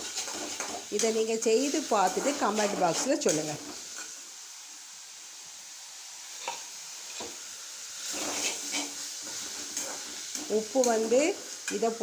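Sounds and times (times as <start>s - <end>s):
spoon stirring and scraping: 0.0s - 4.2s, 8.0s - 11.9s
food sizzling in hot oil: 0.0s - 12.0s.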